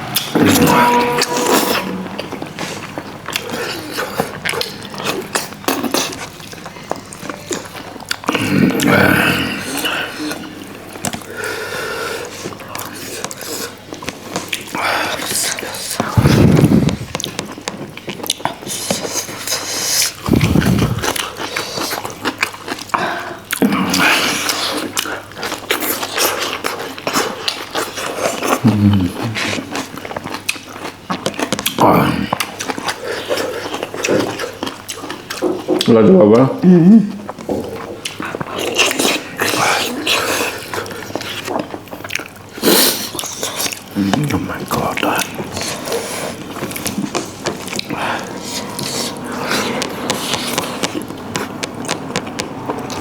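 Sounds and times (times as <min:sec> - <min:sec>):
chewing and biting food: 0:02.2 - 0:53.0
mouth clicks and smacks: 0:13.0 - 0:22.8, 0:37.1 - 0:53.0.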